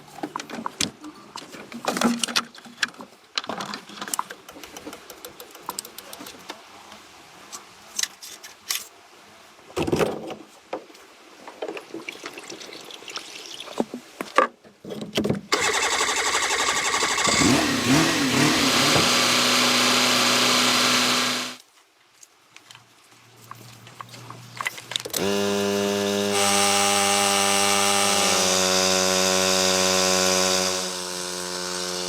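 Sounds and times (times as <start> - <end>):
machine humming: 15.6 - 21.6, 25.2 - 32.0.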